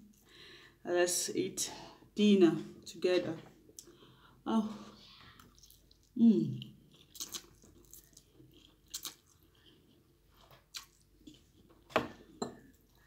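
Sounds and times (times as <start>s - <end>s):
quiet chewing: 5.1s - 11.9s
mouth smacks and clicks: 7.0s - 7.7s, 8.9s - 9.4s, 10.7s - 11.0s.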